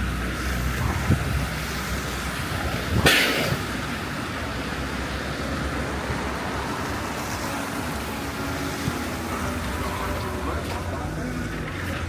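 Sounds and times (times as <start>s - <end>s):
city traffic rumble: 0.0s - 12.0s
loud hiss: 2.6s - 4.1s.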